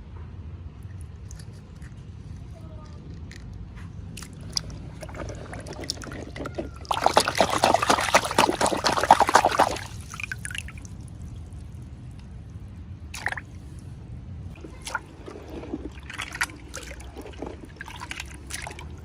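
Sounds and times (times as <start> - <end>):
liquid pouring: 4.2 - 11.8, 14.6 - 19.0.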